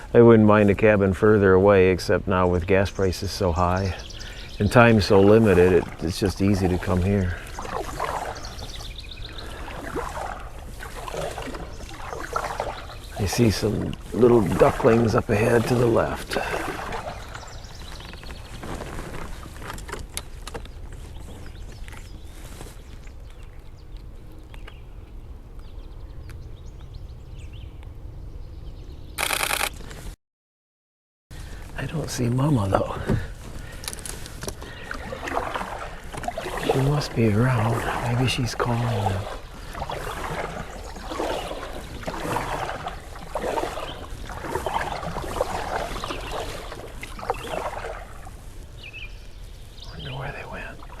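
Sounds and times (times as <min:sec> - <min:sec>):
paddle strokes splashing water: 0:02.7 - 0:23.8, 0:31.4 - 0:51.0.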